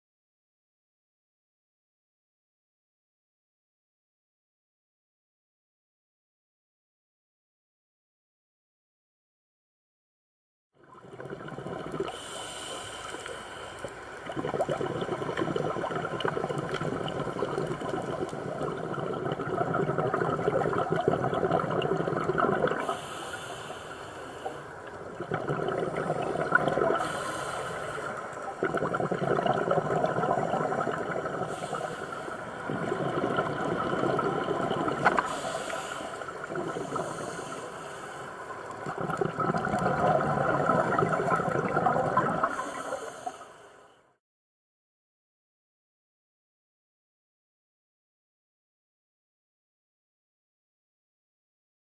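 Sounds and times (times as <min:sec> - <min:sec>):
bubbling exhalations: 0:11.0 - 0:12.4, 0:13.8 - 0:23.3, 0:24.4 - 0:37.6, 0:38.6 - 0:43.1
diver breathing through regulator: 0:11.8 - 0:44.0.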